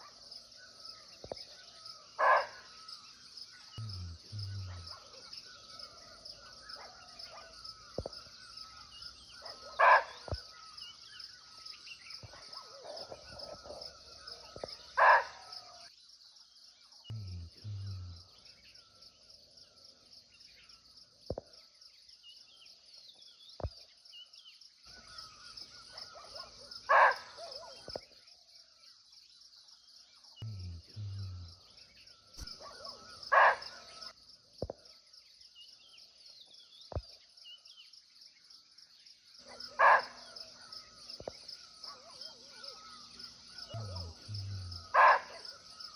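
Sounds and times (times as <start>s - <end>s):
insects droning: 0.0s - 45.9s
deer barking: 43.7s - 45.4s.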